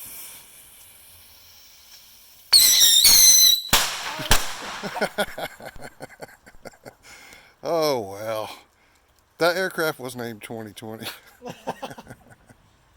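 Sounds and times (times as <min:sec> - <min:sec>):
firework whistle: 0:00.0 - 0:05.4
firework bangs: 0:02.5 - 0:05.9.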